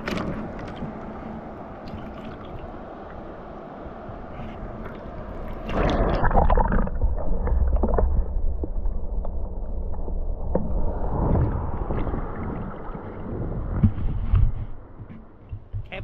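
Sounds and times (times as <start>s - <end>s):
river water rushing and splashing: 0.0s - 8.2s
low rumble: 0.0s - 16.0s.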